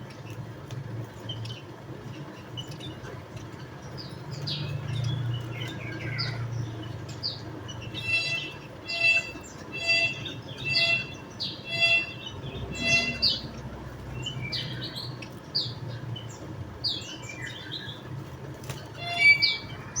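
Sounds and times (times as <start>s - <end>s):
thin rapid bird chirps: 3.9s - 18.0s, 18.6s - 20.0s
bird chirps: 3.9s - 18.1s, 18.9s - 20.0s.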